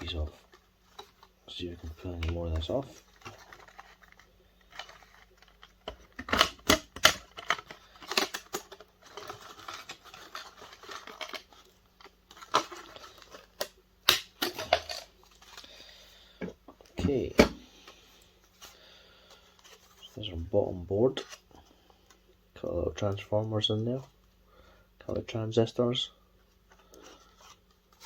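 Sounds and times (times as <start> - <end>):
plastic parts scraping: 0.0 - 20.3.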